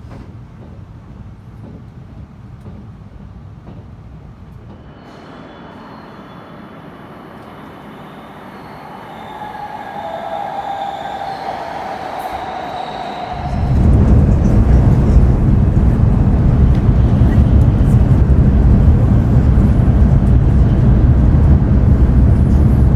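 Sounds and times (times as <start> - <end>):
train rumbling on rails: 0.0 - 22.9
high-pitched whine: 4.8 - 22.9
hissing rush: 4.9 - 20.2.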